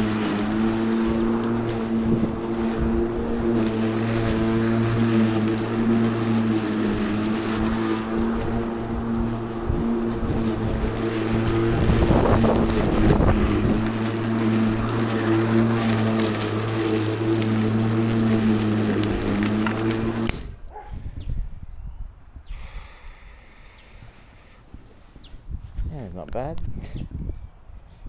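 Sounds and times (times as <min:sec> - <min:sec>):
battery lawn mower cutting grass: 0:00.0 - 0:20.8.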